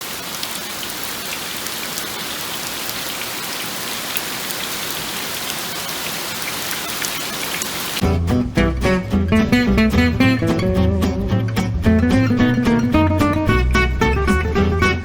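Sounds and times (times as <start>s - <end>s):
steady rain falling: 0.0s - 8.0s
acoustic guitar music: 8.0s - 15.0s.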